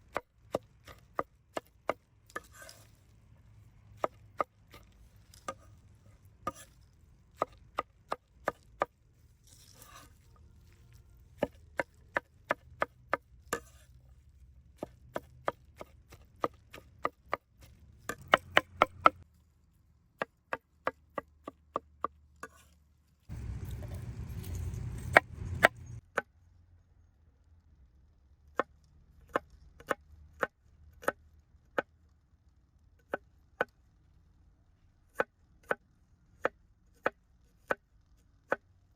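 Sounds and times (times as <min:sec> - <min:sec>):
knife chopping on wooden board: 0:00.0 - 0:02.9, 0:04.0 - 0:05.7, 0:06.5 - 0:06.8, 0:07.4 - 0:08.9, 0:11.4 - 0:13.9, 0:14.8 - 0:19.2.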